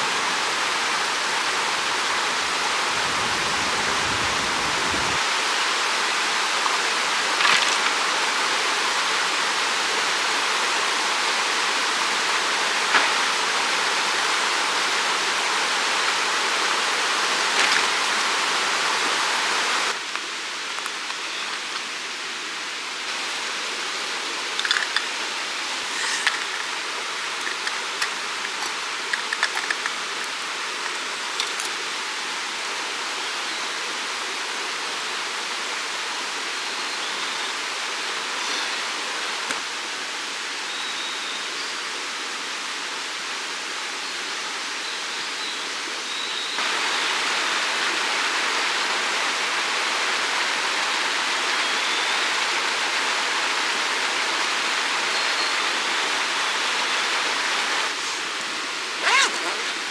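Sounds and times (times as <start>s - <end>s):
small clicks: 26.0s - 31.8s.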